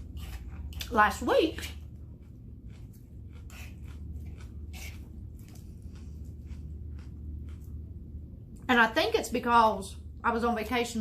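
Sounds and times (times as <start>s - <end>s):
close-up chewing with soft crunches: 0.0s - 8.6s.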